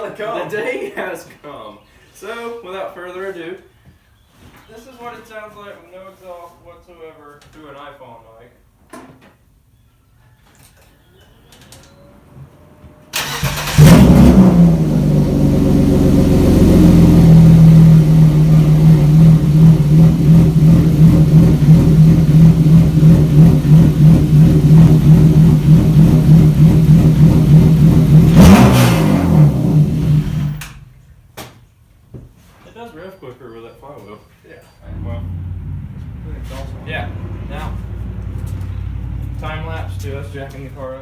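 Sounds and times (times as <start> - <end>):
car engine starting and idling: 13.1 - 30.9, 34.8 - 41.0
car engine revving: 13.2 - 30.8, 34.8 - 41.0.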